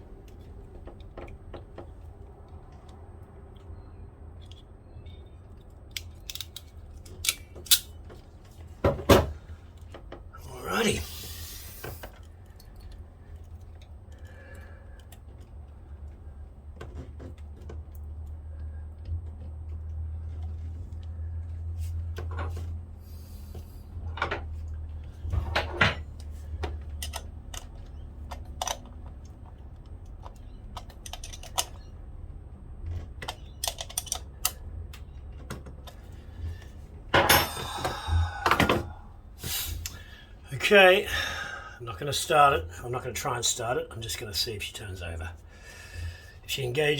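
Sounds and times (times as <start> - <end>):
low hum: 17.6 - 40.4.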